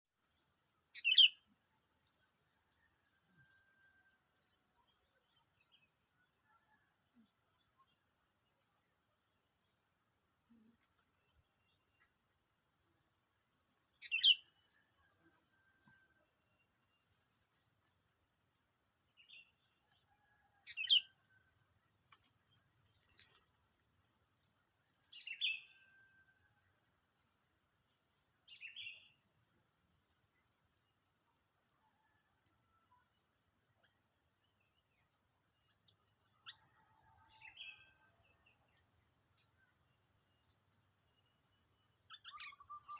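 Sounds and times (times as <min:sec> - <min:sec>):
sharp bird calls: 0:42.1 - 0:42.9.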